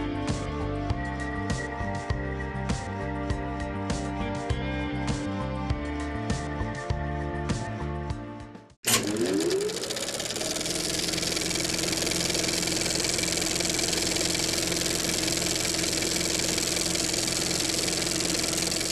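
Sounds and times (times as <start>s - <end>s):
motorcycle engine revving: 8.9s - 18.9s.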